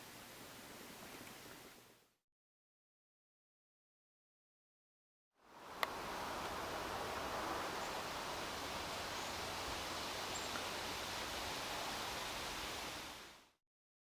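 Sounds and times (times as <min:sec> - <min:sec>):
steady background hiss: 0:00.0 - 0:02.1, 0:05.4 - 0:13.6.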